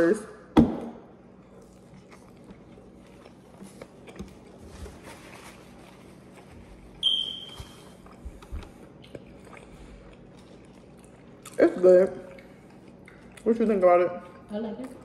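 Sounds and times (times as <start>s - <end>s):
pizza being chewed: 1.1s - 15.0s
high electronic beep: 7.0s - 7.6s.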